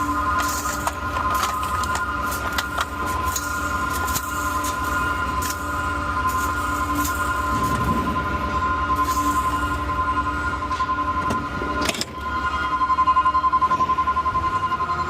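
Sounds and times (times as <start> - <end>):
garbage truck engine running: 0.0 - 15.0
high hydraulic whine: 0.0 - 15.0.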